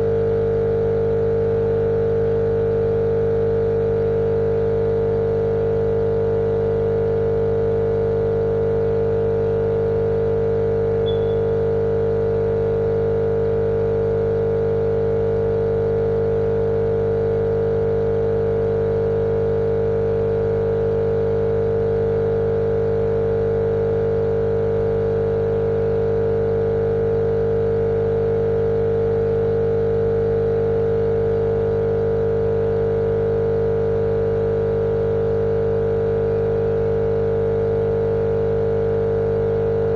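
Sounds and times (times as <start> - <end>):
steady mechanical hum: 8.9 - 14.4.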